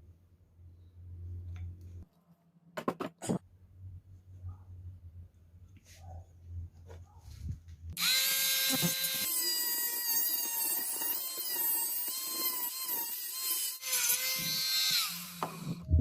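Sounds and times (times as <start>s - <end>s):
cordless drill motor whine: 8.0s - 13.1s, 13.8s - 15.8s.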